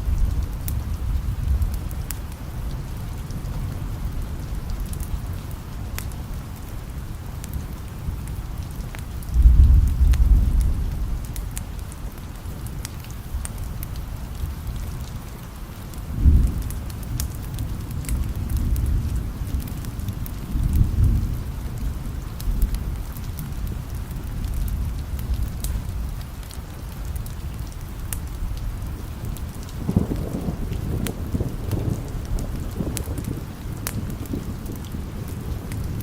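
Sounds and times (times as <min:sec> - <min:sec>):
steady rain: 0:00.0 - 0:36.0
thunder rolling: 0:29.8 - 0:36.0.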